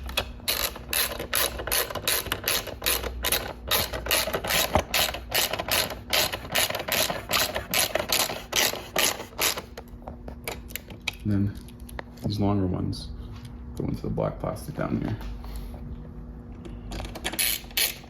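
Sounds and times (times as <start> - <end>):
ratchet wrench clicking: 0.2 - 9.6, 17.0 - 18.0.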